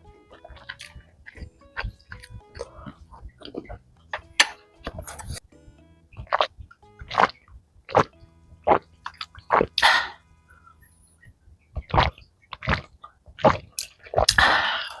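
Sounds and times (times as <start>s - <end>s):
sharp mouth eating noises: 11.8s - 14.8s
slurps: 11.8s - 15.0s.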